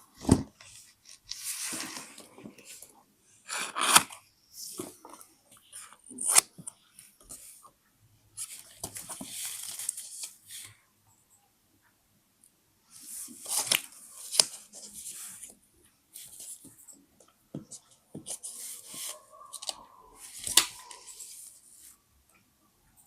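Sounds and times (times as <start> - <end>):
paper rustling and crinkling: 13.3 - 15.2, 18.2 - 21.6.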